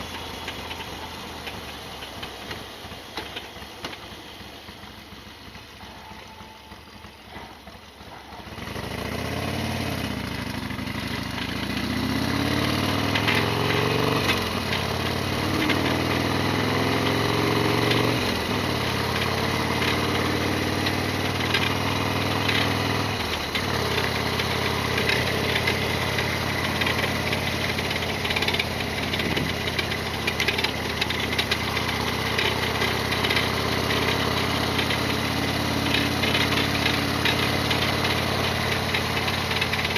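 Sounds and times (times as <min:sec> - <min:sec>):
motorcycle engine pulling away: 0:00.0 - 0:39.9.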